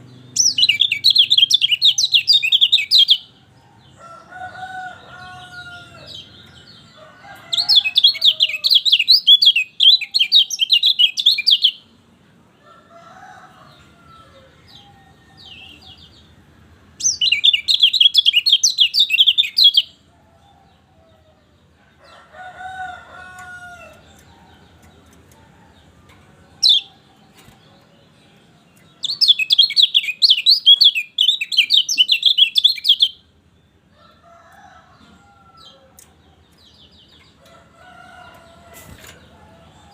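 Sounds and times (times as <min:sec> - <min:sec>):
bird twittering song: 0:00.0 - 0:04.0, 0:04.8 - 0:11.9, 0:17.0 - 0:20.0, 0:23.2 - 0:39.9.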